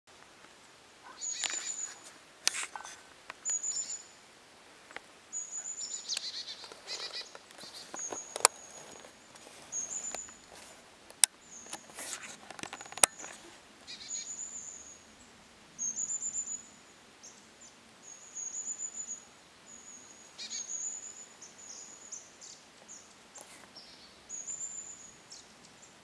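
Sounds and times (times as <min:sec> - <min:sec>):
high thin bird calls: 0:01.0 - 0:04.2, 0:05.3 - 0:09.0, 0:09.7 - 0:10.4, 0:11.4 - 0:15.0, 0:19.8 - 0:23.1.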